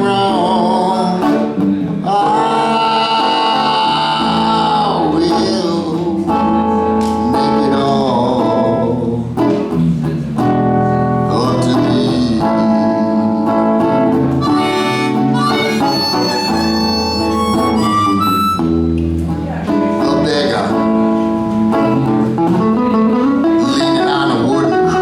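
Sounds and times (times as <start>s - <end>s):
acoustic guitar accompaniment: 0.0s - 25.0s
harmonica melody: 14.4s - 19.0s.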